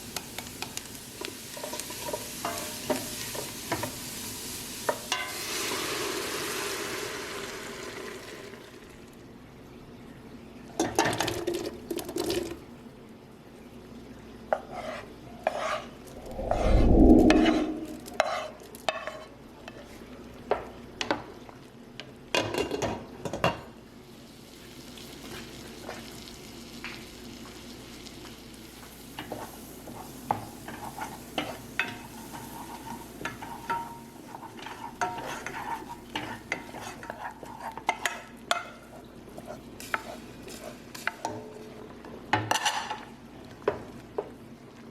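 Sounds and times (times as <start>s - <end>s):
food sizzling in a pan: 0.0s - 9.1s, 24.0s - 44.8s
utensil scraping a pan: 34.3s - 38.1s.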